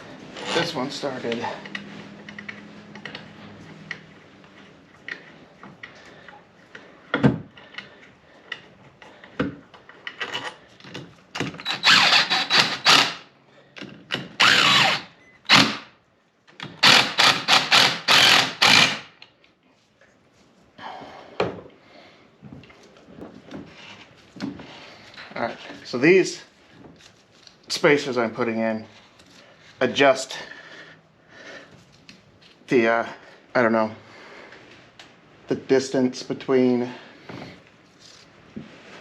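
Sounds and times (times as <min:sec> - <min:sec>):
power tool running in bursts: 0:11.7 - 0:13.2, 0:14.4 - 0:15.8, 0:16.8 - 0:19.1.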